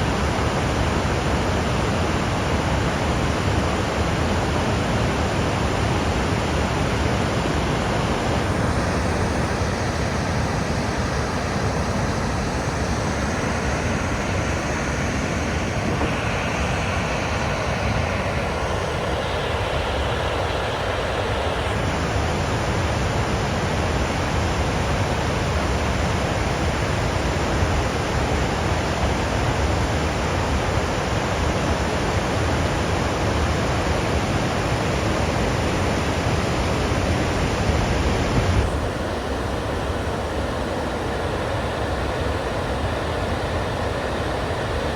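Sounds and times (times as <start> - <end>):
water rushing through dam spillway: 0.0 - 44.9.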